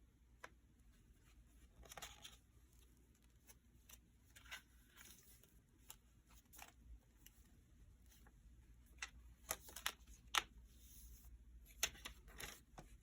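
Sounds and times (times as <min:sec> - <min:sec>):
paper pages rustling: 0:01.5 - 0:07.4.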